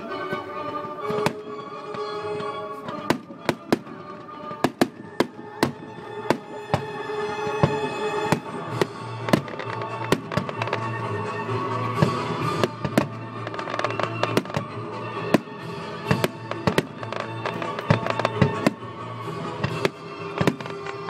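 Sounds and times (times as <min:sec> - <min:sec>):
music: 0:00.0 - 0:21.0
fireworks bangs: 0:02.9 - 0:11.0.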